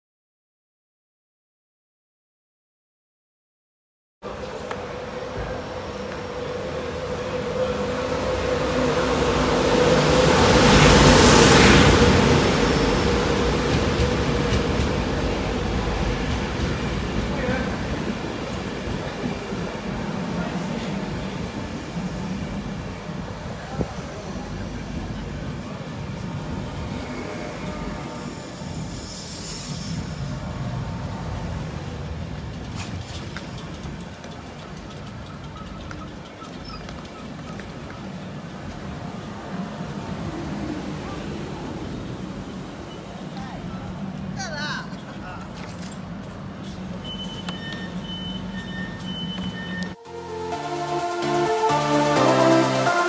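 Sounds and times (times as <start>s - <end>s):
train passing close by: 4.2s - 53.0s.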